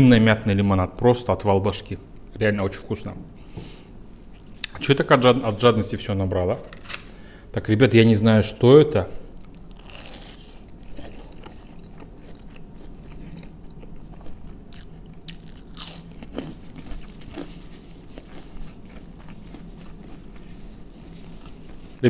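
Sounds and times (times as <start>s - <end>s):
chewing crispy fried food: 9.3s - 22.0s.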